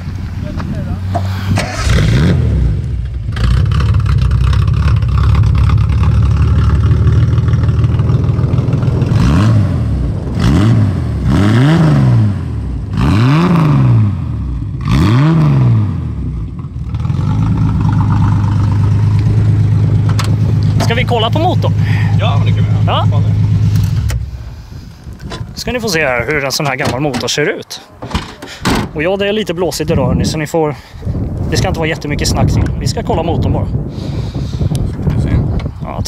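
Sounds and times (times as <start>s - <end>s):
car engine idling: 0.0s - 13.0s, 16.2s - 25.6s
car engine revving: 0.0s - 24.6s.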